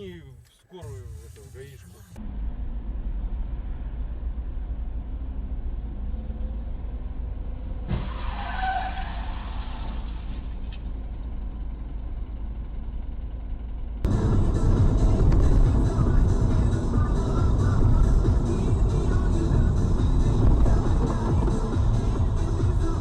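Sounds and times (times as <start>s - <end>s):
car interior road rumble: 0.0s - 8.2s, 13.7s - 23.0s.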